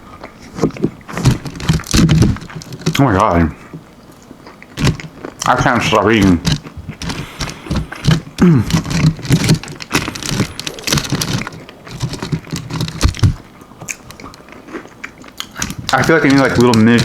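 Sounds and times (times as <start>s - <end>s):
chewing crunchy food: 0.1s - 17.0s.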